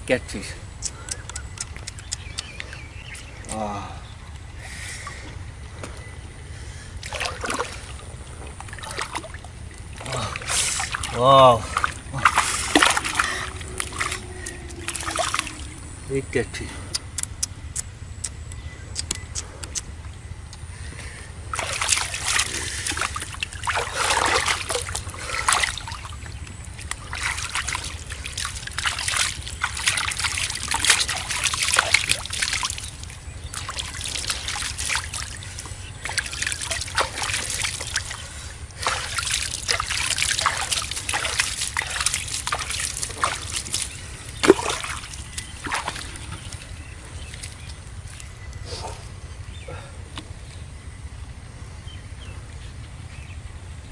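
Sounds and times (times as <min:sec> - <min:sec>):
steady low rumble: 0:00.0 - 0:53.9
shallow water splashing: 0:06.8 - 0:16.1, 0:21.4 - 0:48.4.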